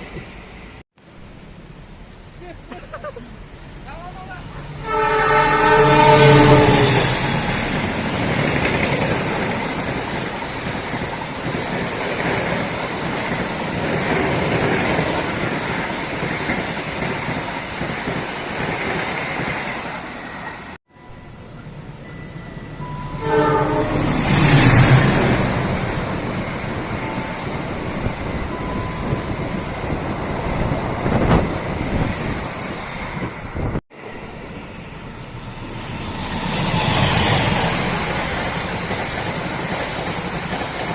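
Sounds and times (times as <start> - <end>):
train wheels rumbling: 2.9 - 40.9
train rushing past: 3.4 - 40.9
train horn: 4.8 - 7.8, 22.9 - 25.7.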